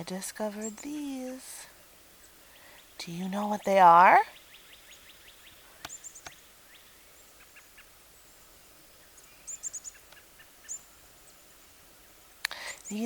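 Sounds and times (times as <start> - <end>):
faint outdoor hiss: 0.0 - 13.0
small bird chirping: 0.6 - 13.0.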